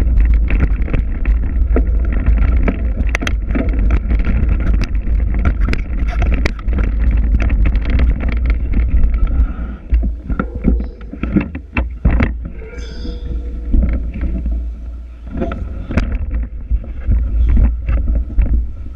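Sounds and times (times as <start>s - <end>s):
mountain bike rattling: 0.0s - 18.9s
wind rumbling on microphone: 0.0s - 18.9s
disc brakes high squeal: 12.6s - 13.5s.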